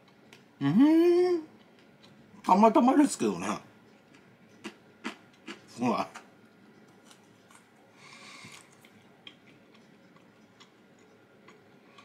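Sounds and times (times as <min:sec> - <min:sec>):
faint chewing: 0:01.5 - 0:02.5, 0:03.8 - 0:12.0.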